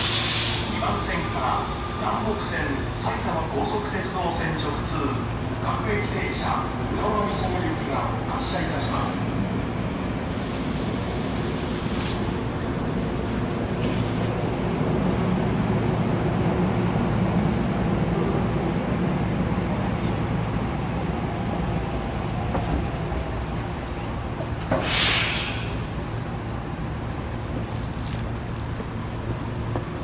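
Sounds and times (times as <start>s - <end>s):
hiss of air: 0.0s - 2.5s, 24.8s - 25.9s
train wheels rumbling: 0.0s - 30.0s.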